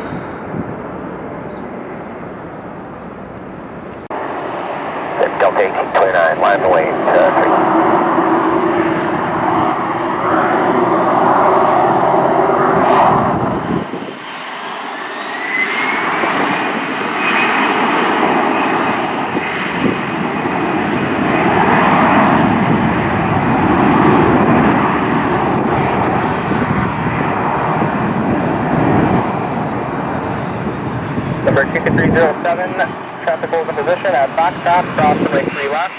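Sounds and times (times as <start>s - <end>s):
jet engines running with whine: 0.0s - 35.9s.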